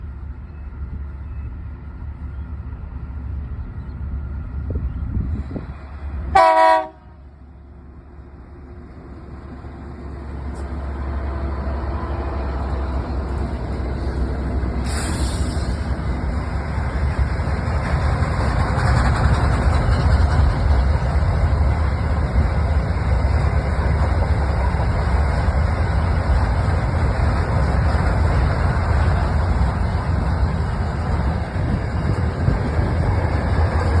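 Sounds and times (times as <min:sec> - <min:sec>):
freight train rumbling past: 0:00.0 - 0:34.0
train horn blast: 0:06.3 - 0:07.2
brief hiss: 0:14.8 - 0:16.0.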